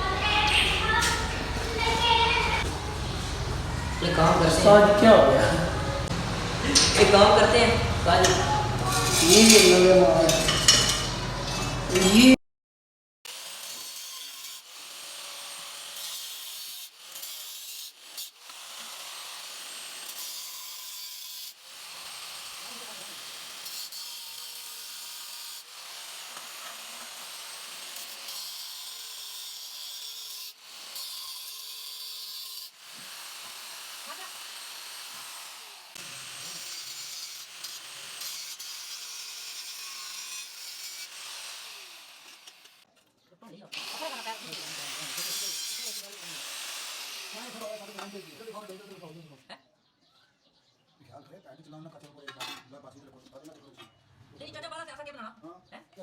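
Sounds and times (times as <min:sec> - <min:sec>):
abrasive rubbing: 0:00.0 - 0:12.4.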